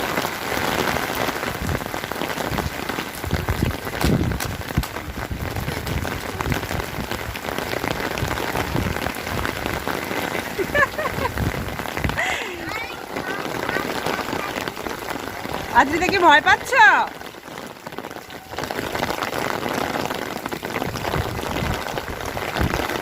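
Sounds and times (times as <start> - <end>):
rain pattering: 0.0 - 23.0
short high voice: 12.3 - 14.7.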